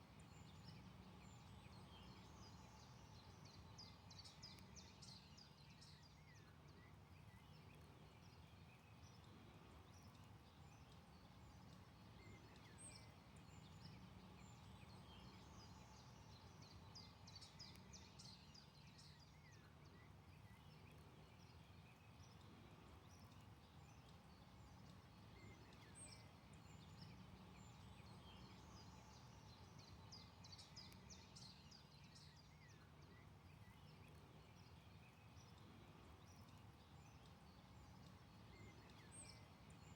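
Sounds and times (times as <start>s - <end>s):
distant songbirds chirping: 10.5s - 39.9s.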